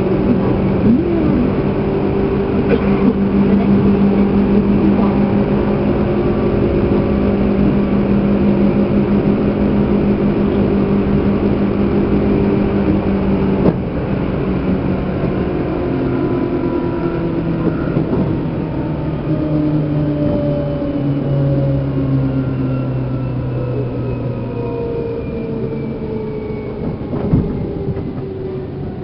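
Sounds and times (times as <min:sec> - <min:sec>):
traction motor hum: 0:00.0 - 0:29.0
train wheels on rails: 0:17.0 - 0:18.8, 0:25.4 - 0:29.0.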